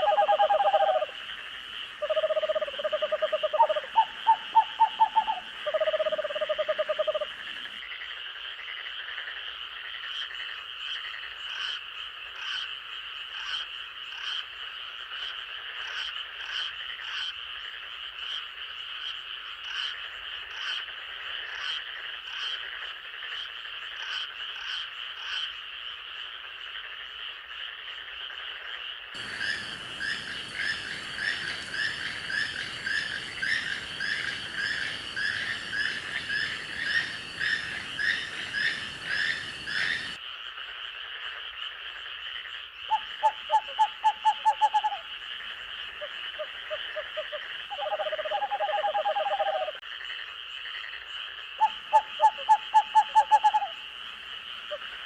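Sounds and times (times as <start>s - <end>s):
insects high trilling: 0.0s - 7.8s, 29.2s - 40.2s, 42.9s - 49.8s, 51.6s - 55.0s
frogs rhythmic croaking: 0.0s - 55.0s
hiss: 29.2s - 40.2s.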